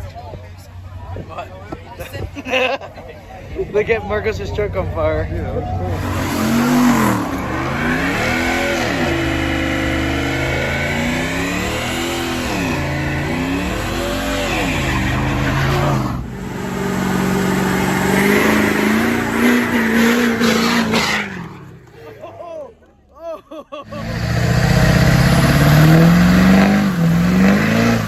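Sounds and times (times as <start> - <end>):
truck engine revving: 4.1 - 22.1, 23.9 - 28.0.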